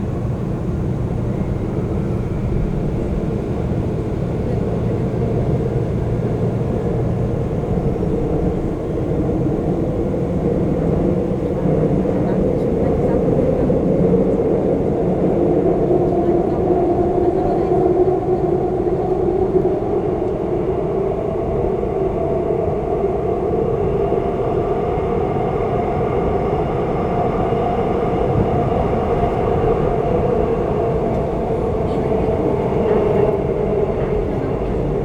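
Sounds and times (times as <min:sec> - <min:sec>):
train wheels rumbling on rail: 0:00.0 - 0:35.0
train motor hum: 0:27.0 - 0:35.0.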